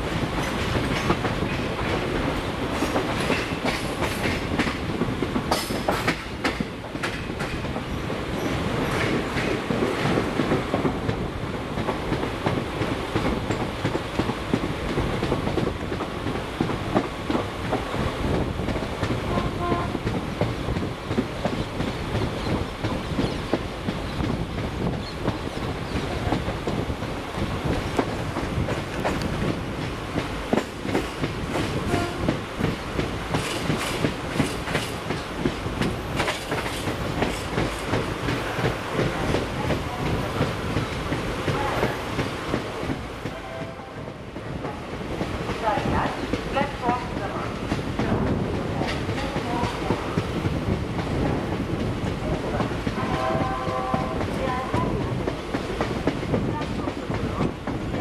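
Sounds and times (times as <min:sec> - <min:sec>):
train wheels clattering over rail joints: 0:00.0 - 0:43.3.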